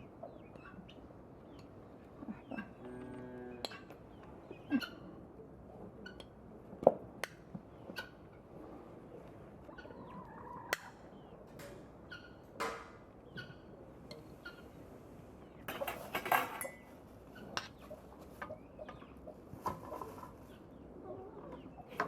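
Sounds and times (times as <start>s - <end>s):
poultry calling: 9.6s - 11.4s.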